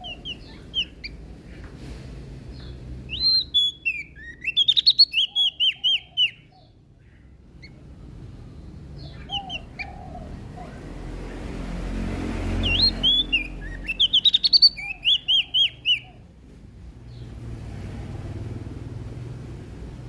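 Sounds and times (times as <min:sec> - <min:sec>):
bird singing high chirps: 0:00.0 - 0:01.6, 0:02.5 - 0:10.8, 0:12.5 - 0:16.3.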